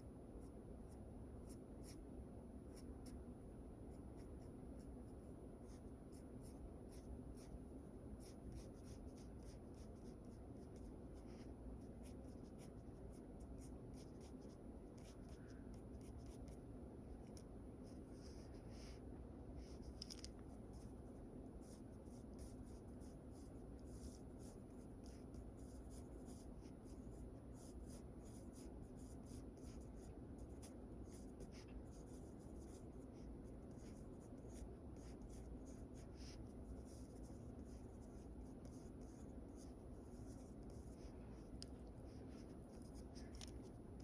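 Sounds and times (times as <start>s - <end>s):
low background hum: 0.0s - 44.0s
pencil scratching on paper: 21.6s - 44.0s.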